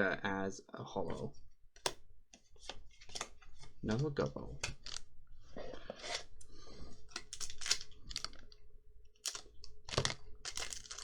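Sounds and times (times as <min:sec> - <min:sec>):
cards rustling and clicking: 0:01.8 - 0:05.1, 0:06.0 - 0:11.0.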